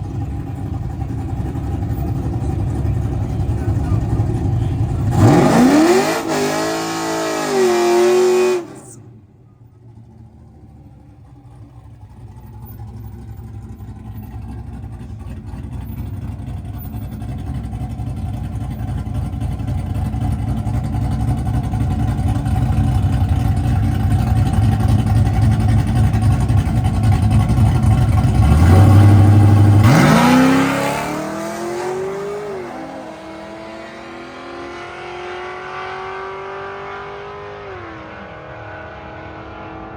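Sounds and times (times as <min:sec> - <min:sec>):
drag cars accelerating hard: 0:00.0 - 0:09.2, 0:19.7 - 0:39.9.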